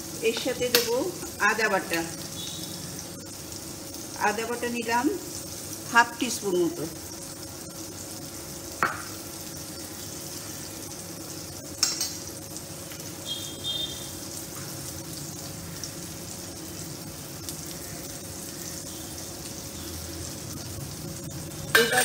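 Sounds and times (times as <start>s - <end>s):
vegetables sizzling in oil: 0.0s - 22.0s
metal spoon clinking bowl: 21.7s - 22.0s.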